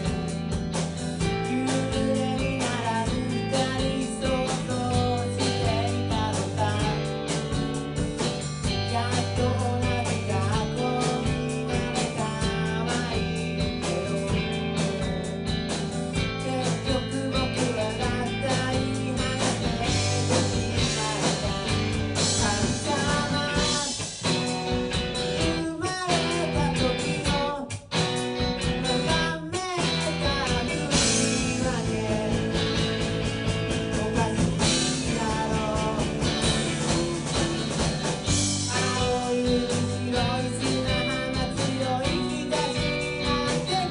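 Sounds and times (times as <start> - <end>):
person singing: 0.0 - 8.0, 8.6 - 24.6, 25.2 - 33.0, 33.7 - 43.9
live rock band: 0.0 - 43.9.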